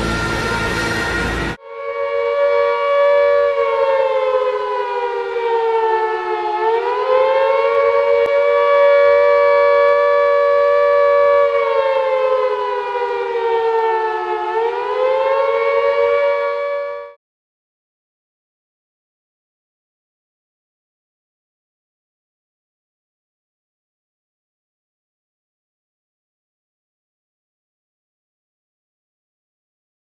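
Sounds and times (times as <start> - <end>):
air-raid siren wailing: 0.0 - 17.2.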